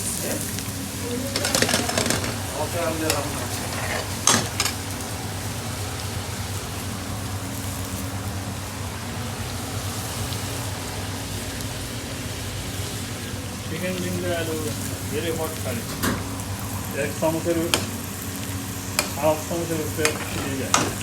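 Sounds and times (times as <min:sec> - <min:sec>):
kitchen hiss and hum: 0:00.0 - 0:21.0.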